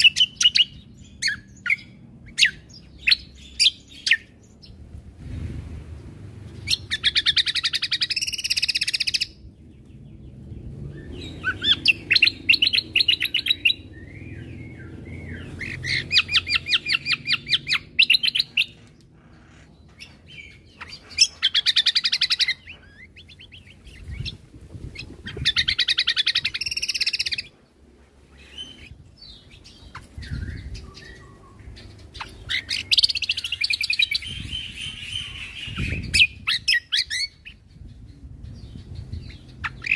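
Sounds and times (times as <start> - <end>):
bird chirps: 0.0 - 4.8, 6.4 - 39.9.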